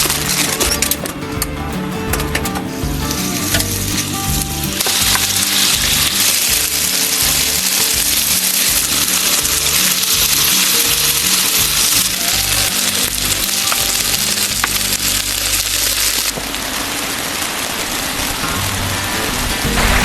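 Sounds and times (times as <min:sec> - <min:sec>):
background music: 0:00.0 - 0:16.4, 0:18.4 - 0:20.0
food sizzling in a pan: 0:04.8 - 0:17.8.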